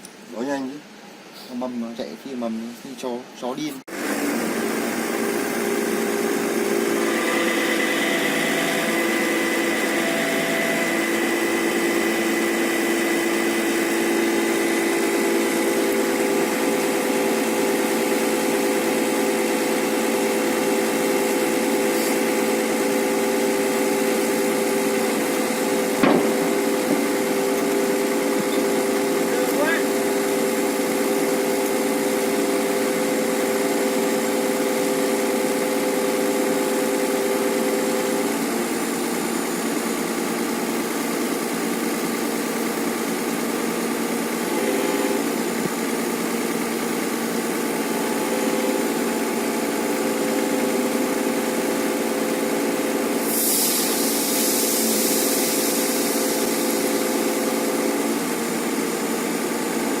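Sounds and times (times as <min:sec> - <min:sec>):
excavator engine humming: 0:04.2 - 0:53.2
hiss: 0:21.8 - 0:22.3, 0:53.1 - 0:57.5.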